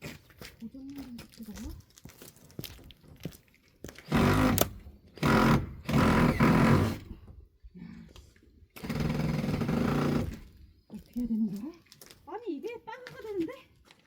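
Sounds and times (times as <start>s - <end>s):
cordless drill driving screws: 4.0s - 7.1s, 8.8s - 10.5s.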